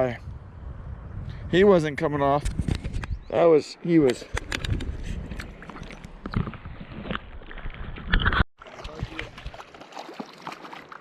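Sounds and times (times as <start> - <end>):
wind on the microphone: 0.0 - 3.4, 4.1 - 9.6
river water splashing and rushing: 8.6 - 11.0.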